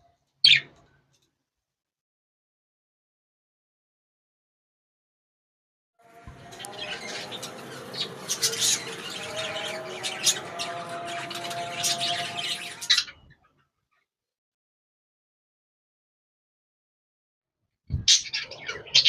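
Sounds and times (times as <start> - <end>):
parrots chirping and squawking: 6.4 - 13.4, 18.1 - 19.0.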